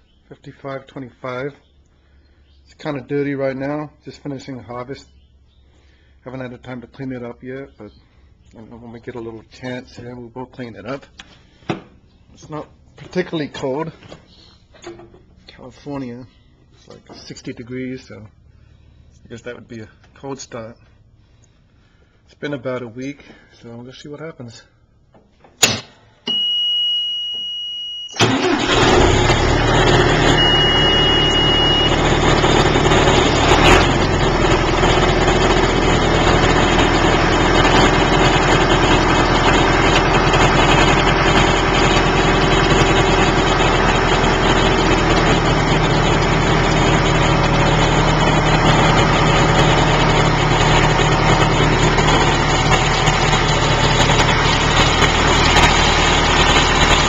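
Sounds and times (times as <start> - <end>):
high warning beep: 26.3 - 28.2, 30.2 - 32.0
tractor diesel engine starting and idling: 28.1 - 57.0.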